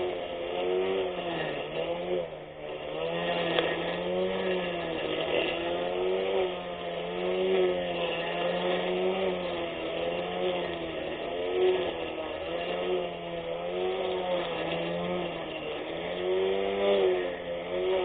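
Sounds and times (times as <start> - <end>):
electric grass cutter motor whine: 0.0 - 18.0.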